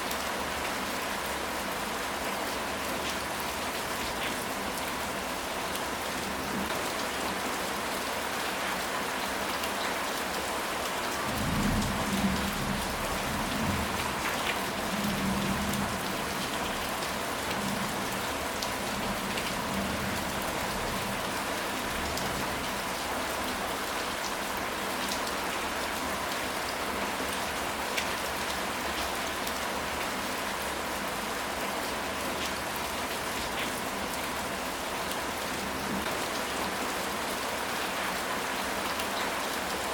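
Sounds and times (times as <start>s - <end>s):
steady rain: 0.0s - 39.9s
low rumble of thunder: 11.2s - 16.2s.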